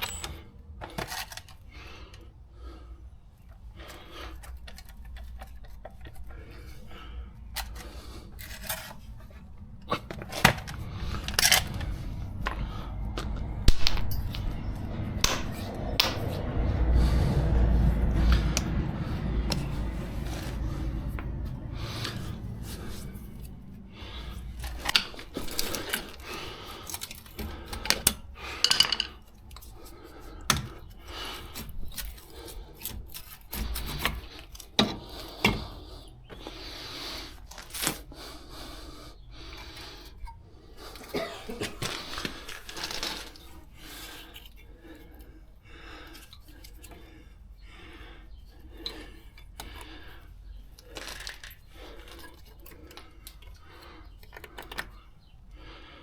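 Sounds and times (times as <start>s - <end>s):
tools and metal parts clinking: 0.0s - 1.7s, 4.3s - 16.4s, 19.4s - 35.8s, 39.4s - 45.3s, 48.6s - 55.2s
low rumble: 6.5s - 26.6s.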